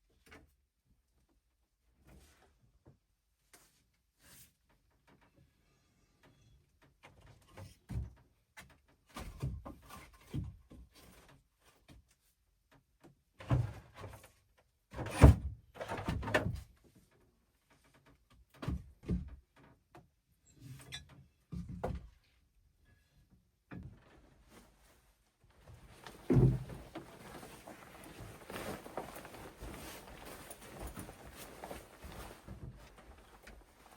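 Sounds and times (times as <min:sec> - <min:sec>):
hard objects knocking and thumping: 0:25.9 - 0:27.6.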